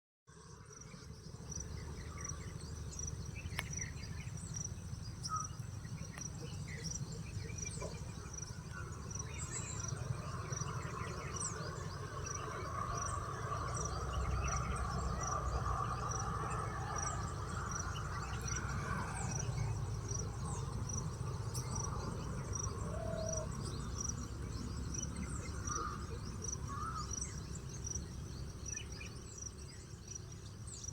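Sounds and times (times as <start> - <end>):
insect chirping: 0.4 - 30.9.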